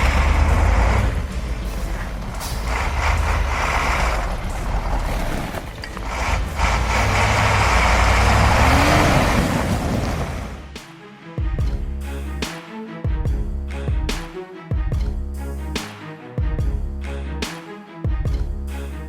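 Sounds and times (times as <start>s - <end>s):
heavy truck engine rumbling: 0.0s - 10.8s.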